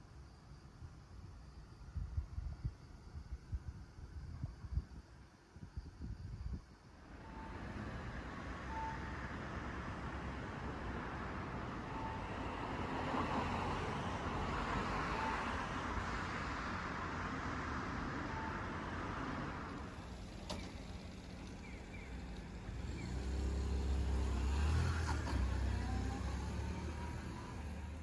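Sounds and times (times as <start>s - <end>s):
car passing: 22.2s - 28.0s.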